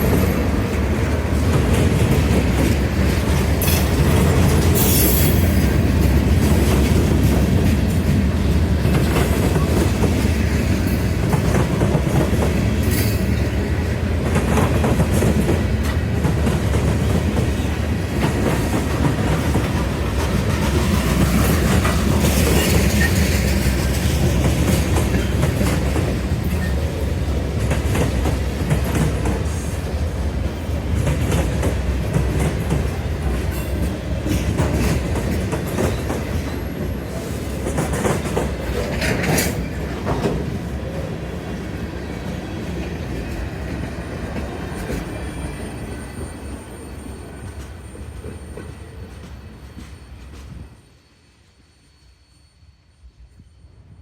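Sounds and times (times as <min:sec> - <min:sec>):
freight train cars rumbling: 0:00.0 - 0:54.0
wheels clicking over rail joints: 0:30.8 - 0:40.6
high-pitched wheel squeals: 0:45.0 - 0:53.9.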